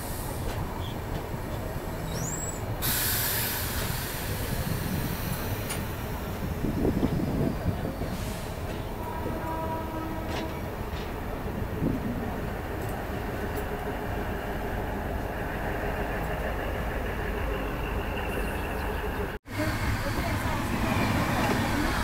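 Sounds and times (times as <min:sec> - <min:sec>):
train rumbling: 0:00.0 - 0:22.0
hiss: 0:02.2 - 0:06.2.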